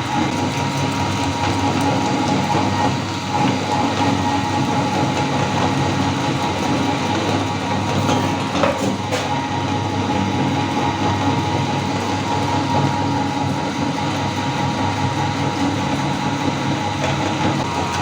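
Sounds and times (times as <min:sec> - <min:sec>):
meat grinder grinding candy: 0:00.0 - 0:18.0.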